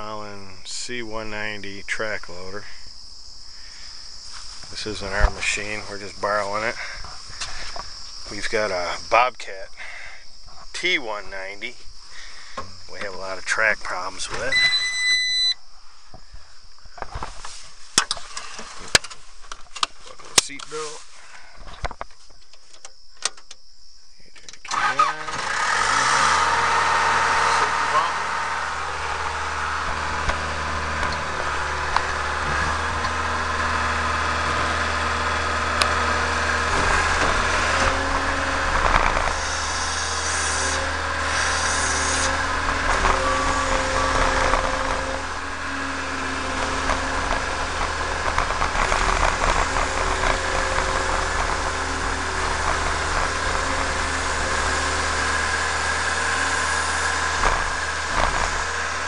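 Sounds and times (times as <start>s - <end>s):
diesel engine running: 3.7s - 10.2s, 11.4s - 15.6s, 24.7s - 59.0s
machine whining: 12.2s - 15.6s, 24.7s - 59.0s.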